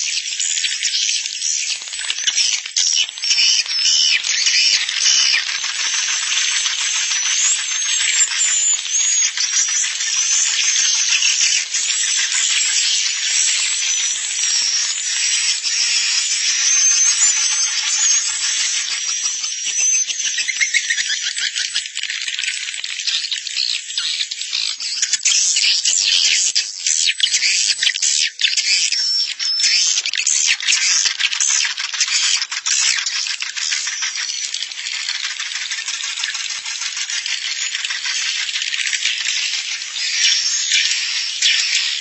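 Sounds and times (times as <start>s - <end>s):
swiftlets twittering: 0.7s - 21.3s.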